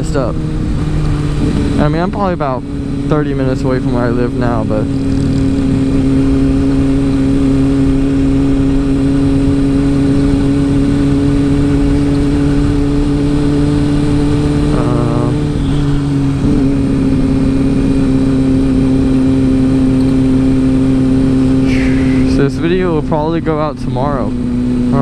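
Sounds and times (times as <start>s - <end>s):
wind noise on microphone: 0.0s - 3.0s
motorcycle engine running: 0.0s - 25.0s.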